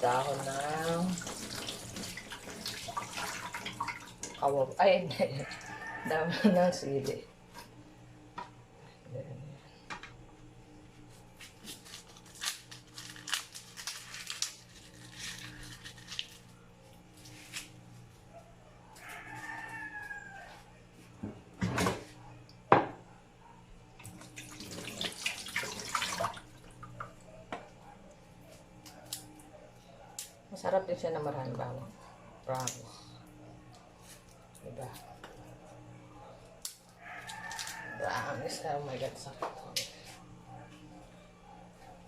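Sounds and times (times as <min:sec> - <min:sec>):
rooster crowing: 0:05.2 - 0:06.8, 0:18.8 - 0:20.8, 0:37.0 - 0:38.7
rustling and scraping: 0:13.8 - 0:18.3.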